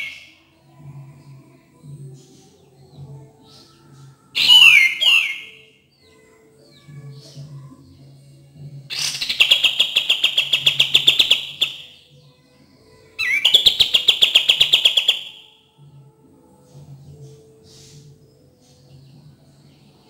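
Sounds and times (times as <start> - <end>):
bird song rapid trills: 8.9 - 12.0, 13.2 - 15.6.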